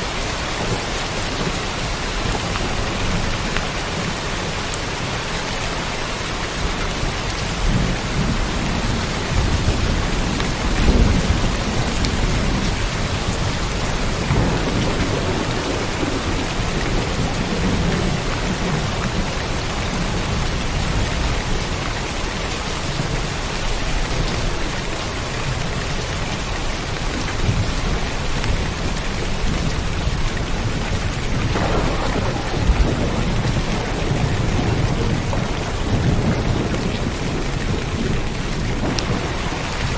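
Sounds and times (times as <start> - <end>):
steady rain falling: 0.0 - 39.9
low thunder rumbles: 6.2 - 39.9.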